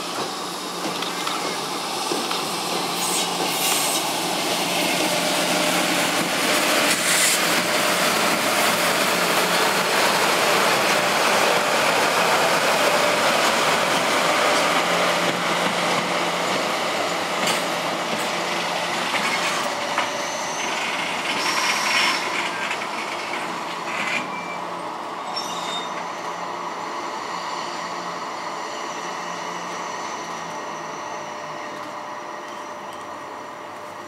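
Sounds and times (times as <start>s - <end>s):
train wheels clattering over rails: 0.0s - 24.4s
wheel squeals: 19.2s - 22.8s, 23.9s - 24.7s, 25.3s - 26.1s.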